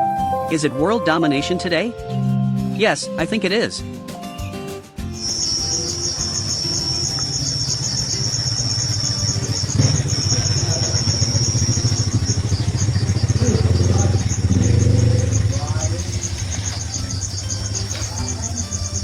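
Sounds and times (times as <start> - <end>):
insect trilling: 5.1 - 19.0
low rumble: 7.4 - 17.3.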